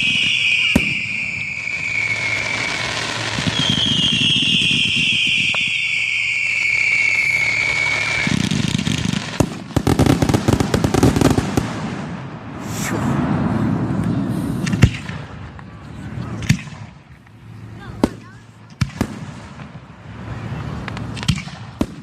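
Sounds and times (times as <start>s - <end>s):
firework whistle falling: 0.0s - 9.4s
firework bang: 0.0s - 15.5s
low rumble: 11.8s - 17.7s.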